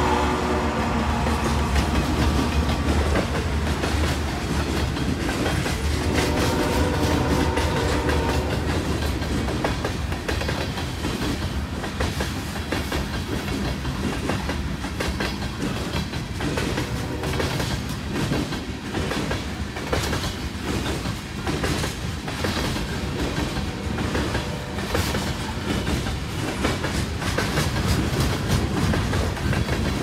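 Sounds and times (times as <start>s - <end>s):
freight cars rumbling: 0.0s - 19.8s
clickety-clack of wheels over rail joints: 0.0s - 30.0s.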